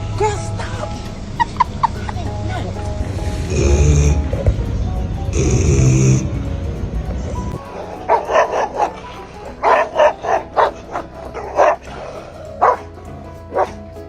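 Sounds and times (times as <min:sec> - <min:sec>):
music: 0:00.0 - 0:14.0
dog barking: 0:07.6 - 0:13.8.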